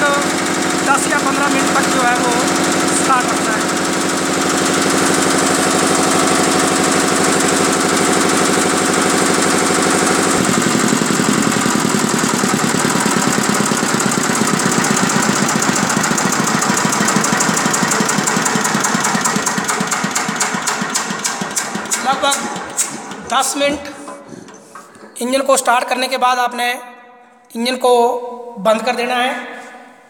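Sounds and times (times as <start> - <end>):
diesel engine running: 0.0 - 23.2.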